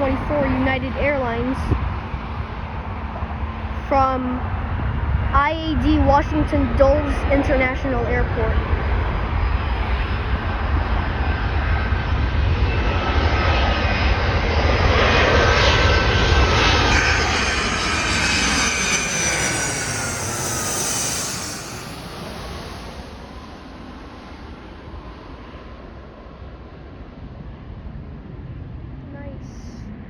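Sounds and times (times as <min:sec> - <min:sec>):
jet airliner flying past: 0:00.0 - 0:30.0.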